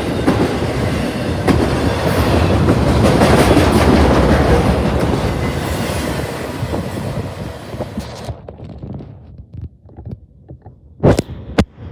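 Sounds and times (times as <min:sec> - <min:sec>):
train wheels rolling on rails: 0:00.0 - 0:09.1.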